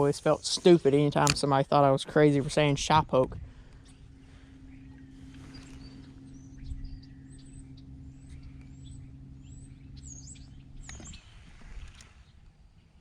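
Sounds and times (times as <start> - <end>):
steady low hum: 0.0 - 13.0
small birds chirping: 3.5 - 13.0.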